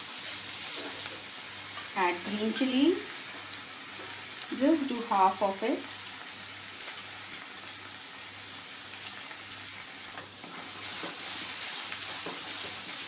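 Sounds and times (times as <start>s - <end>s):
sizzling in hot oil: 0.0s - 13.0s
spatula stirring in wok: 10.2s - 13.0s.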